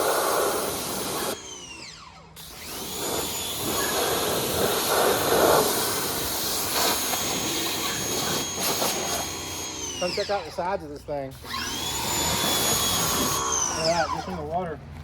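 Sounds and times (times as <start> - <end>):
high-pressure water jet hiss: 0.0 - 1.4, 3.0 - 10.2
pressure washer motor whine: 0.0 - 14.6.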